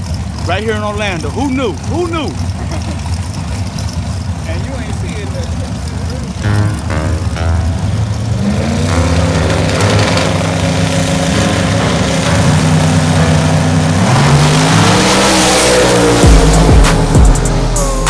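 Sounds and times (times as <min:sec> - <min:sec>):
race car engine at full throttle: 0:00.0 - 0:18.0
heavy low thumps: 0:06.4 - 0:14.8, 0:16.2 - 0:18.0.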